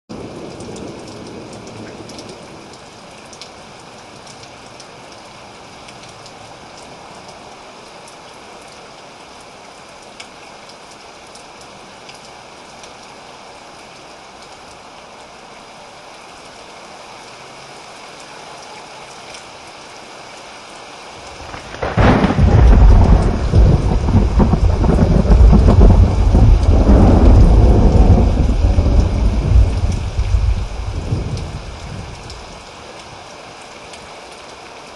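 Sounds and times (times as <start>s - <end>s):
steady rain falling: 0.1s - 34.9s
deep rumble of thunder: 21.3s - 32.6s.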